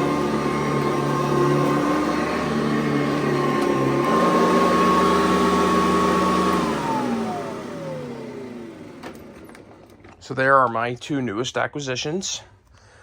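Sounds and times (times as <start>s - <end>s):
motor winding down: 0.0s - 10.0s
vacuum cleaner whine: 0.0s - 10.2s.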